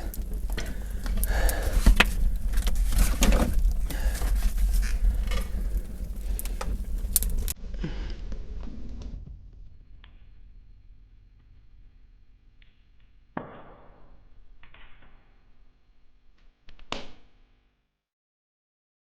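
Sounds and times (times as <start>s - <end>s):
fire crackling and popping: 0.0s - 7.6s, 11.4s - 17.0s
low steady rumble: 0.0s - 11.0s.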